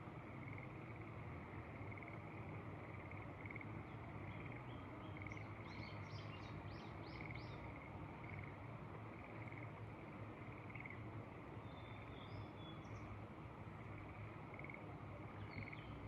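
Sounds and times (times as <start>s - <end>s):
songbird singing: 3.0s - 8.6s, 10.4s - 13.2s, 13.8s - 16.0s.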